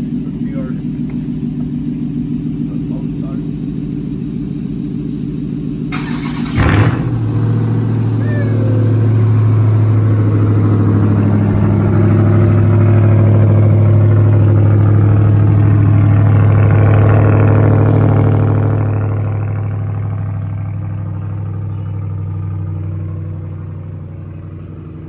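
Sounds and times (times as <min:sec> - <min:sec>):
loud engine idle: 0:00.0 - 0:25.0
engine cranking and starting: 0:05.9 - 0:08.2.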